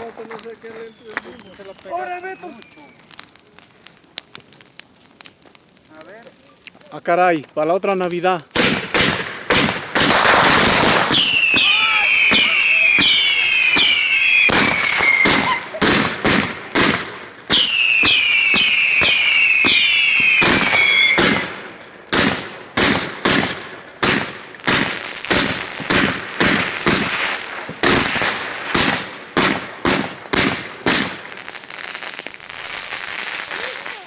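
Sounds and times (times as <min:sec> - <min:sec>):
fireworks falling whistles: 0:00.0 - 0:03.1, 0:08.6 - 0:21.5, 0:24.1 - 0:34.0
loud crackling: 0:00.0 - 0:34.0
firecracker bangs: 0:08.5 - 0:31.4.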